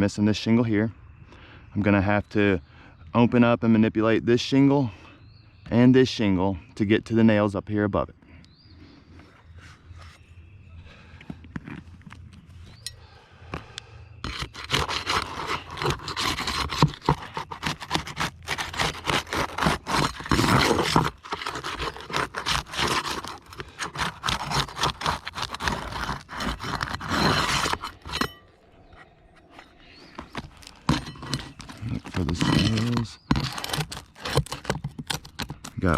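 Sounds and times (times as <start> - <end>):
roof shingles scraping and crackling: 14.2 - 28.3, 29.5 - 35.9.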